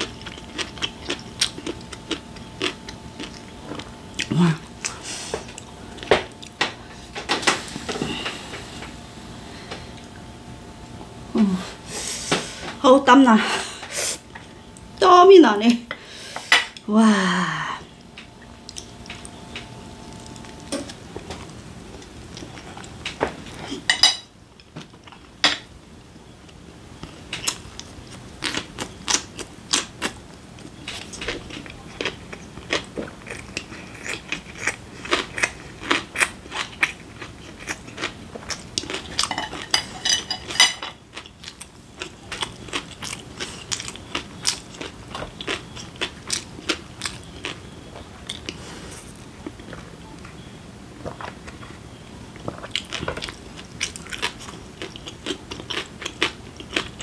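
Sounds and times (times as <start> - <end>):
person chewing: 0.0 - 9.0, 18.0 - 23.9, 27.3 - 50.2, 52.4 - 57.0.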